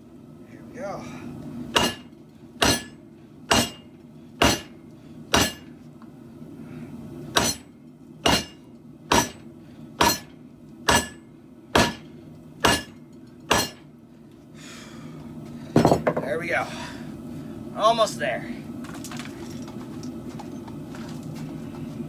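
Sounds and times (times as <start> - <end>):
hammer striking steel blade: 1.8 - 4.7, 5.3 - 5.7, 7.4 - 9.4, 10.0 - 10.3, 10.9 - 11.2, 11.8 - 12.0, 12.6 - 13.8.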